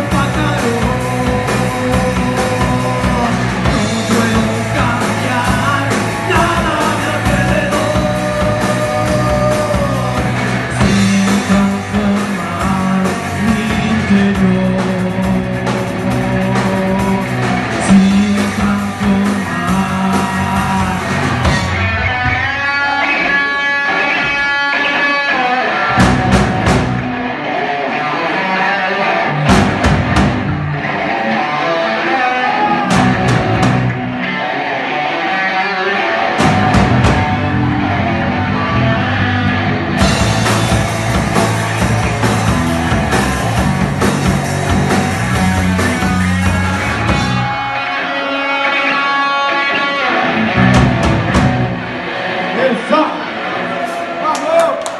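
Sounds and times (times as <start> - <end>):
live band playing: 0.0 - 54.9
drum kit hits: 26.0 - 27.1, 29.4 - 30.7, 36.4 - 37.7, 39.9 - 47.6, 50.6 - 51.8.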